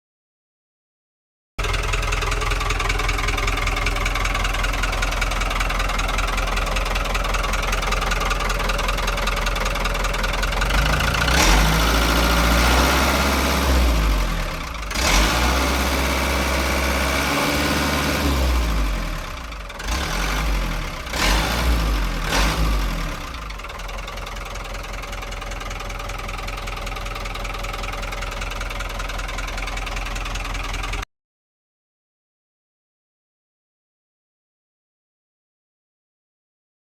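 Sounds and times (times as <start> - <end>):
diesel truck engine idling and revving: 1.6 - 31.0.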